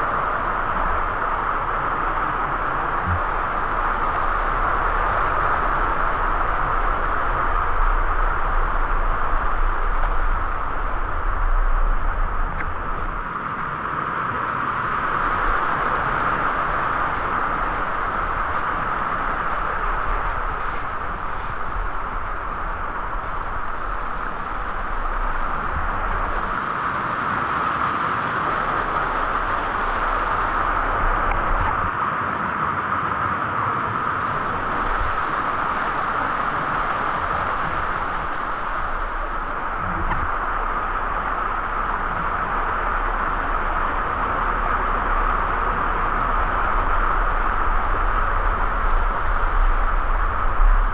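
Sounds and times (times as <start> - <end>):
uneven low rumble: 0.0 - 13.8, 14.8 - 26.6, 28.5 - 31.9, 34.0 - 50.9
waterfall rushing: 34.0 - 50.9.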